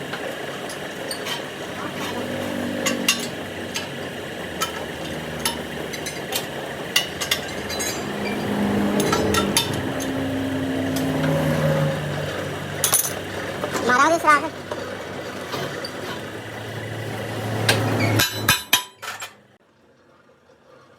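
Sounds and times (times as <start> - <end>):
steady background noise: 0.0 - 19.6
metallic clinks and knocks: 4.6 - 10.2.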